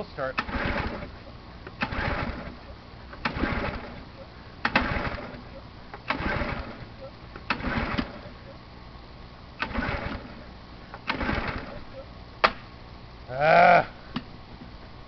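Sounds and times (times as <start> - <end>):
engine cranking: 0.0 - 8.5, 9.6 - 12.0.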